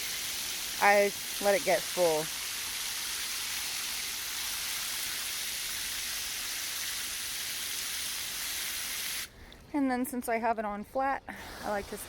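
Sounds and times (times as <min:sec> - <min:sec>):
hose spraying into container: 0:00.0 - 0:09.3.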